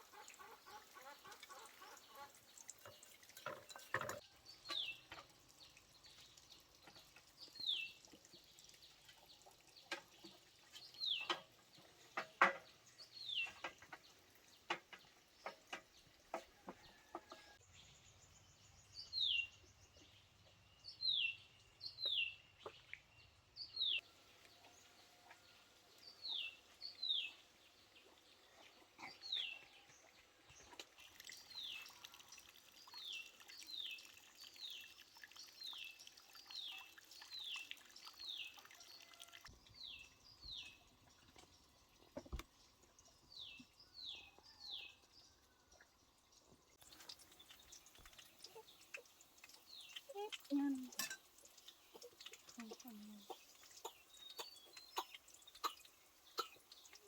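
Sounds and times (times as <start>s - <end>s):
bird chirping: 17.6s - 25.4s.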